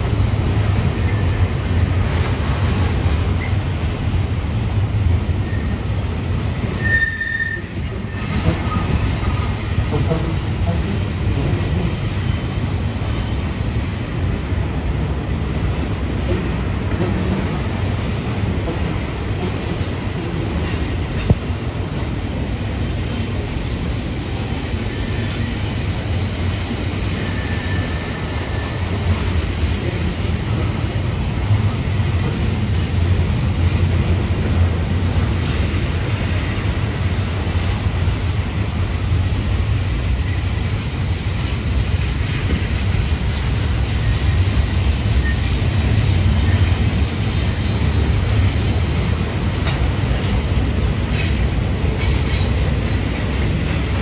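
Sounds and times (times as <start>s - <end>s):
freight train wheels rumbling: 0.0s - 54.0s
high-pitched wheel squeals: 5.4s - 5.9s, 6.5s - 9.6s, 11.6s - 17.6s, 27.2s - 29.0s, 46.4s - 49.9s.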